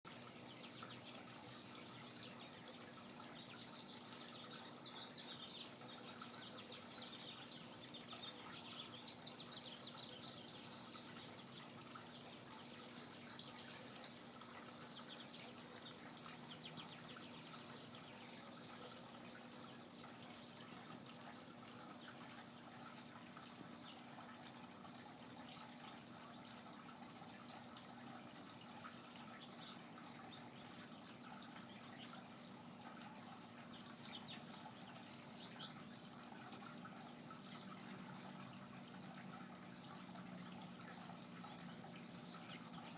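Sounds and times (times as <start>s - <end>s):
small birds chirping: 0.1s - 42.9s.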